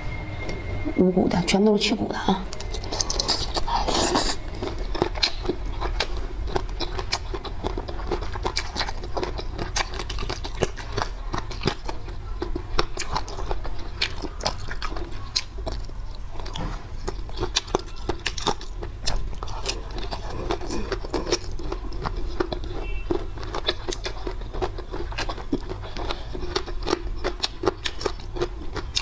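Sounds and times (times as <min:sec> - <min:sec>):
chewing and biting food: 0:02.5 - 0:29.0
wet mouth clicks and crunches: 0:16.5 - 0:29.0.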